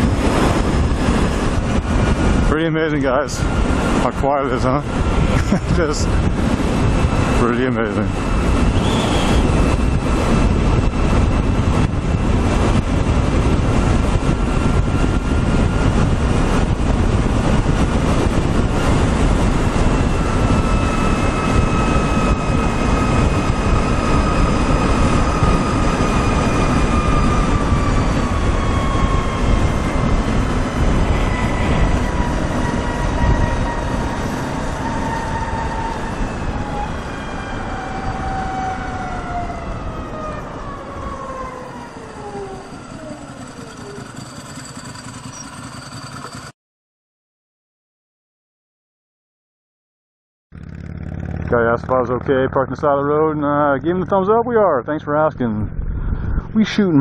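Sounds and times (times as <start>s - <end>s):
wind rushing over microphone: 0.0s - 44.2s, 50.6s - 57.0s
electric motor whine: 6.4s - 12.7s, 18.6s - 46.5s.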